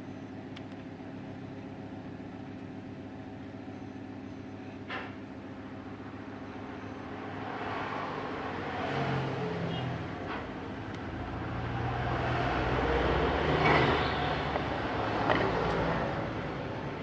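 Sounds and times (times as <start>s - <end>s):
steady background hum: 0.0s - 8.8s, 9.5s - 17.0s
vehicle engine rumble: 5.8s - 17.0s.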